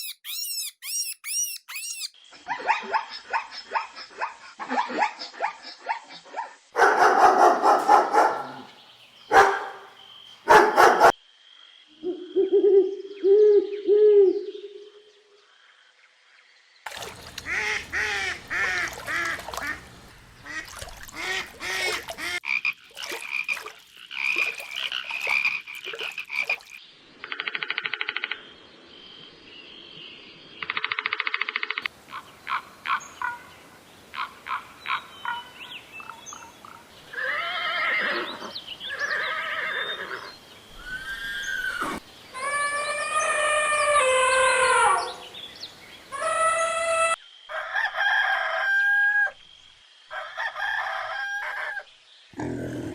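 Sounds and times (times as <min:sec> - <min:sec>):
frogs croaking: 0:06.7 - 0:13.3, 0:15.4 - 0:28.8, 0:30.6 - 0:36.9
rapid frog trilling: 0:17.0 - 0:26.8.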